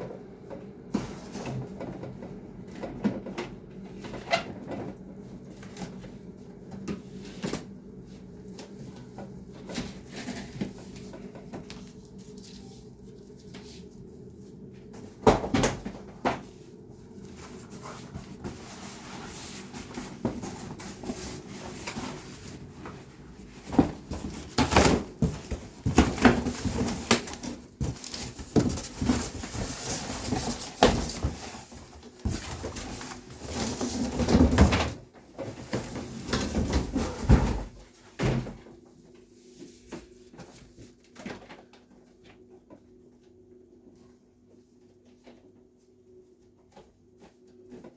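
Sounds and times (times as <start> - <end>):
steady low hum: 0.0 - 34.1.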